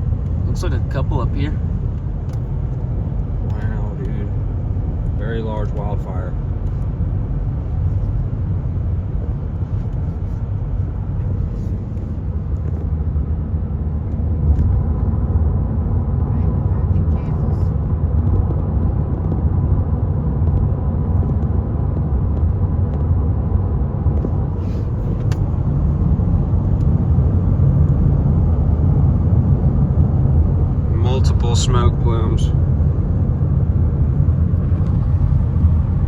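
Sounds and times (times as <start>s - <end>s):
car road and engine rumble: 0.0s - 36.0s.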